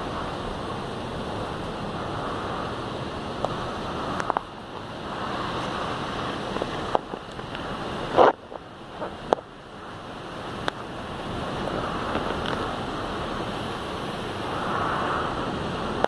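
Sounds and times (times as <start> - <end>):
rain and wind rushing: 0.0 - 16.0
raindrops tapping: 3.2 - 13.6.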